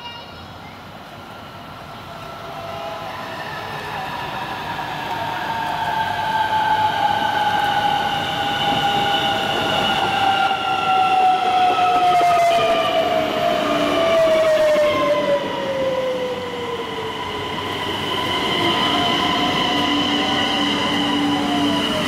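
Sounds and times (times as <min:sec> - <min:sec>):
train wheel rumble: 0:01.0 - 0:22.0.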